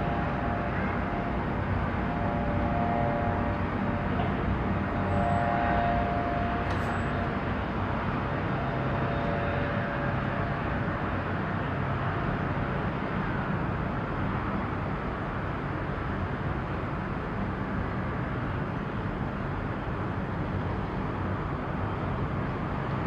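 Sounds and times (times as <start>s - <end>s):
faint whine: 0.0s - 11.0s
distant engines rumbling: 0.0s - 16.1s.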